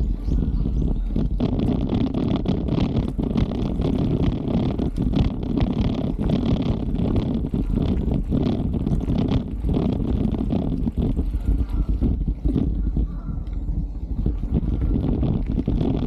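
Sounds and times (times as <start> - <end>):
bike rattles and knocks: 0.0 - 16.0
tyres rolling over trail: 0.0 - 16.0
wind on microphone: 0.0 - 16.0.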